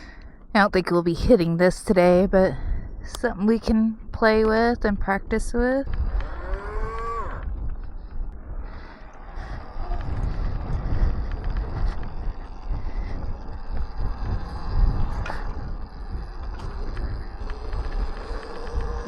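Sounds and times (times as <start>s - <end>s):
wind buffeting microphone: 0.0s - 19.0s
tyre and chassis rattle: 6.0s - 19.0s.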